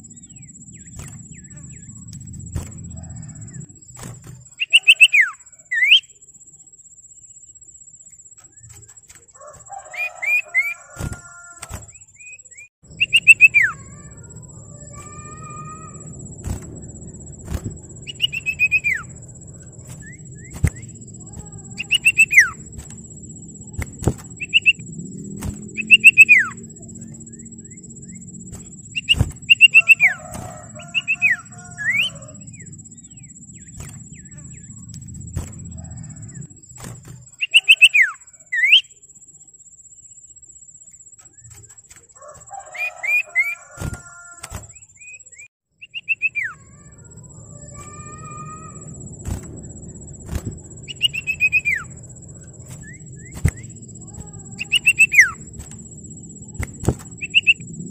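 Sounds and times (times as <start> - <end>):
bird whistled call notes: 4.4 - 6.1, 9.8 - 14.1, 17.4 - 19.2, 19.8 - 22.7, 23.7 - 24.8, 25.8 - 34.8, 37.3 - 38.9, 50.8 - 52.0, 52.7 - 55.4, 56.5 - 57.6
soft bird chattering: 13.0 - 16.2, 52.8 - 55.4.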